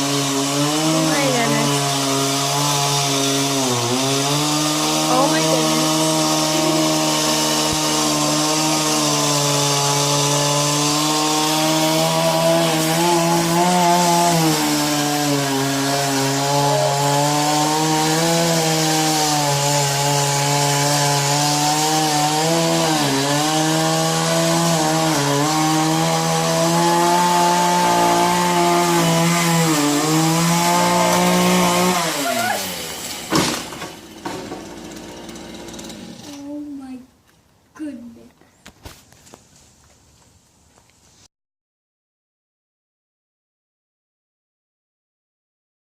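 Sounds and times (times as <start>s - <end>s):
chainsaw cutting wood: 0.0s - 36.6s.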